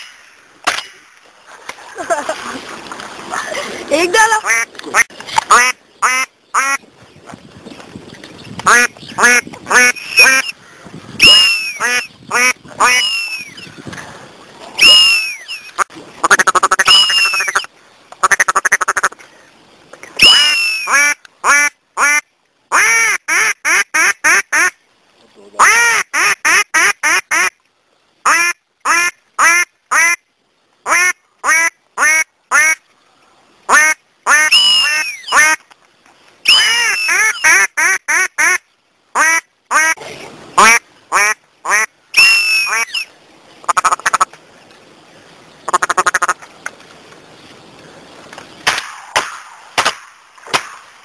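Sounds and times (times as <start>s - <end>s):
ducks quacking: 3.3s - 6.8s, 8.6s - 10.6s, 40.6s - 44.3s, 45.7s - 46.4s.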